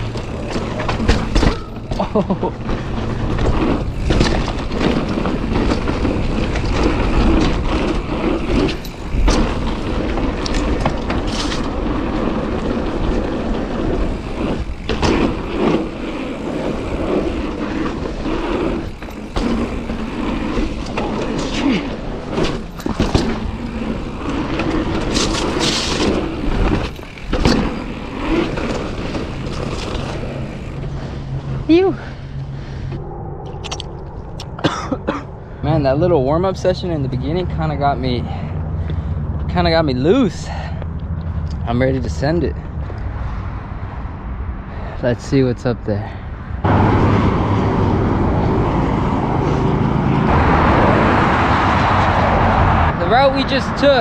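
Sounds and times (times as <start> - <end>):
bike knocking and rattling: 0.0 - 32.5
wind rushing over microphone: 0.0 - 54.0.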